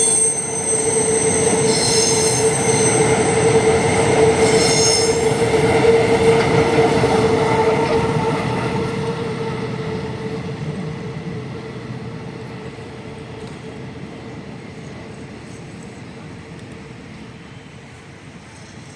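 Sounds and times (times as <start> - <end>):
wagon wheels squealing: 0.0 - 5.7
freight train rumbling on rails: 0.0 - 18.9.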